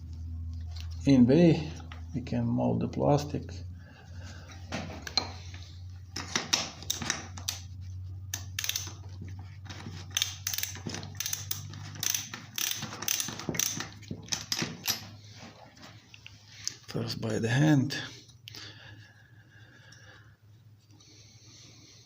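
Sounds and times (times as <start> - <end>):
low steady hum: 0.0 - 22.0
metallic tool clicking and rattling: 8.3 - 9.0, 10.1 - 15.1.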